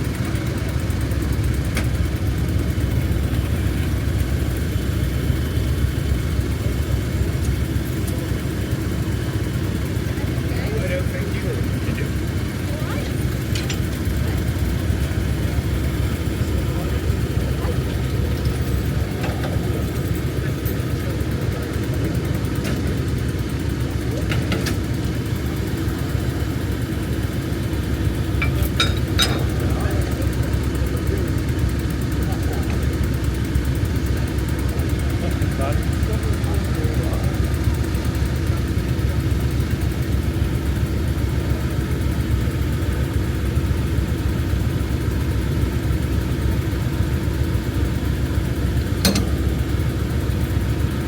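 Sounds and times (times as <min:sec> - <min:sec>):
diesel locomotive engine rumbling: 0:00.0 - 0:51.0.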